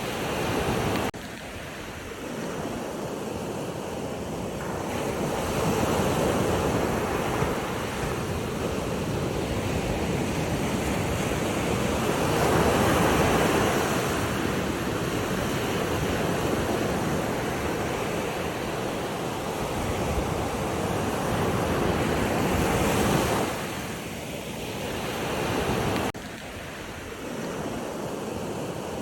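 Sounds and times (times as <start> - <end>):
water rushing: 0.0 - 3.8.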